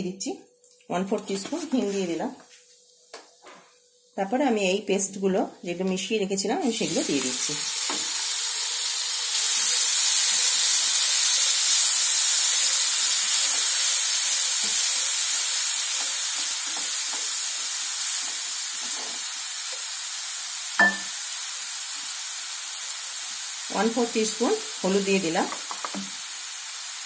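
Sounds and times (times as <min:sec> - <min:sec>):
spice paste sizzling in oil: 0:06.4 - 0:27.0.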